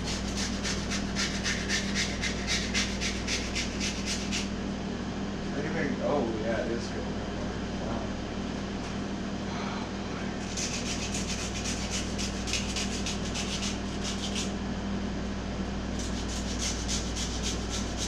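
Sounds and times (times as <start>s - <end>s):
rapid rasping shaving strokes: 0.0s - 4.5s, 10.4s - 14.6s, 15.9s - 18.0s.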